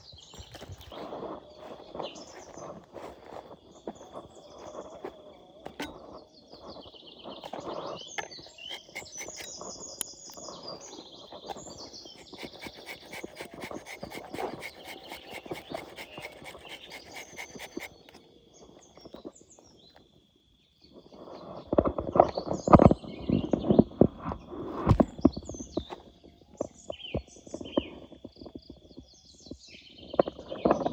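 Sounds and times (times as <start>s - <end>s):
birds chirping: 0.0s - 20.0s
high insect drone: 0.5s - 19.1s.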